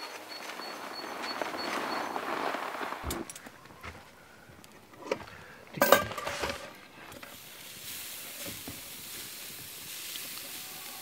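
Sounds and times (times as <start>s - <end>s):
cookware clanking: 5.8s - 6.7s
food sizzling in a pan: 7.3s - 11.0s.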